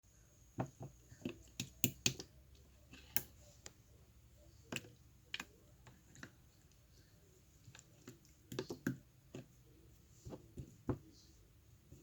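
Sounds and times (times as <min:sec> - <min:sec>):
slime clicking and popping: 0:01.2 - 0:02.3.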